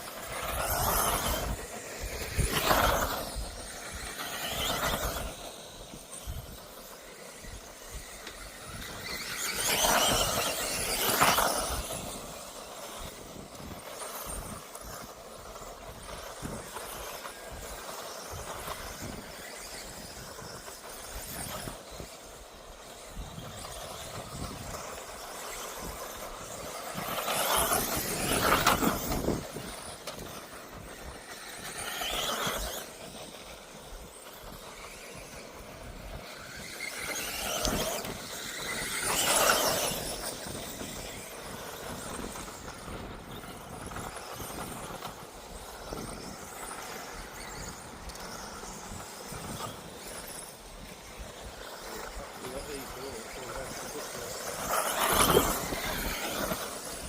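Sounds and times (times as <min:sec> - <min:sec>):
rc buggy motors whining: 0:00.0 - 0:57.0.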